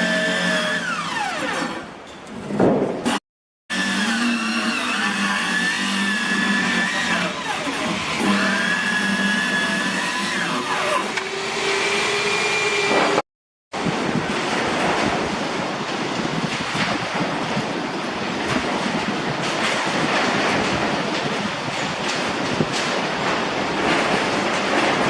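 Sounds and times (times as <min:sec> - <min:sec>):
power tool motor whining: 0:00.0 - 0:01.9, 0:03.7 - 0:12.9.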